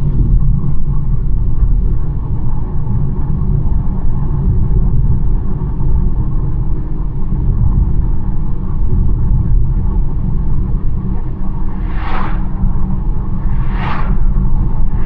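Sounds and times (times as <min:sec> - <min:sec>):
car driving road rumble: 0:10.8 - 0:15.0.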